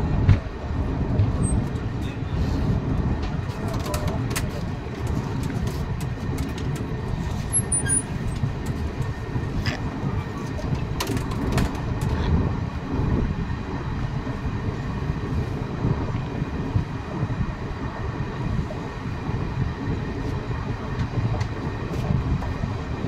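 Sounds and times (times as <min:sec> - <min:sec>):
train wheels rumbling on rail: 0:00.0 - 0:23.0
sharp clicks and clanks: 0:03.2 - 0:09.2, 0:10.6 - 0:12.3.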